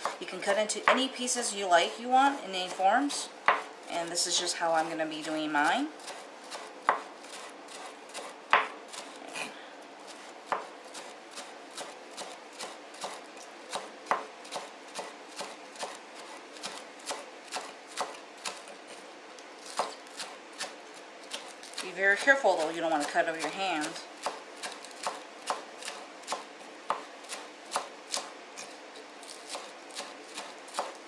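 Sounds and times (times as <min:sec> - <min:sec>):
knife chopping on cutting board: 0:00.0 - 0:00.2, 0:03.4 - 0:03.7, 0:05.2 - 0:09.2, 0:10.1 - 0:18.7, 0:19.6 - 0:28.7, 0:29.3 - 0:31.0.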